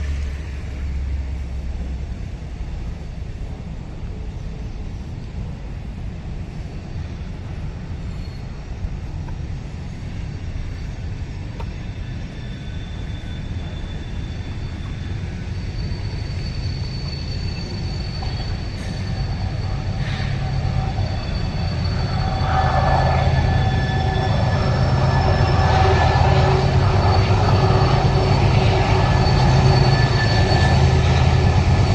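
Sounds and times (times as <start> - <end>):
train rumbling on rails: 0.0 - 31.9
high wheel squeal: 8.0 - 8.8, 10.0 - 31.9.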